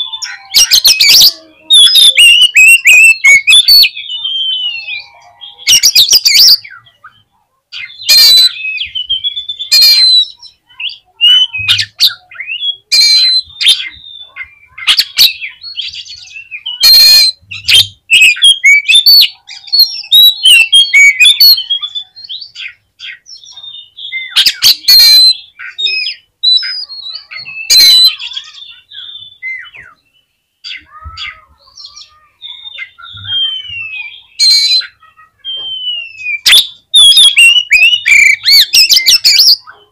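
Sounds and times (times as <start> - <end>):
bird whistled song: 0.0 - 39.8
harsh rasping bird calls: 0.0 - 39.9.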